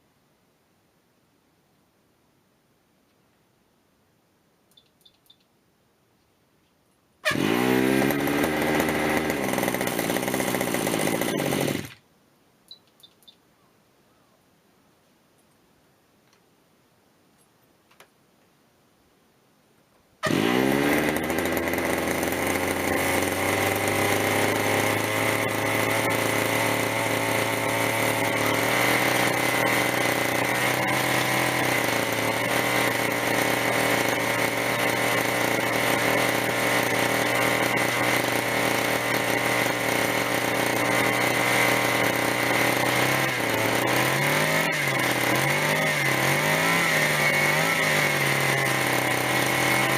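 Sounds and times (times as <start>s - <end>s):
two-stroke engine starting and running: 7.2s - 12.0s, 20.2s - 49.9s.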